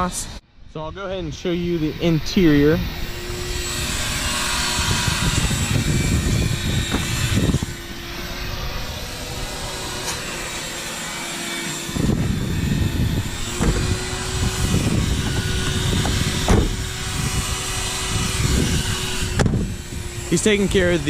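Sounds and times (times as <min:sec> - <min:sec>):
vacuum cleaner running: 0:01.8 - 0:21.0.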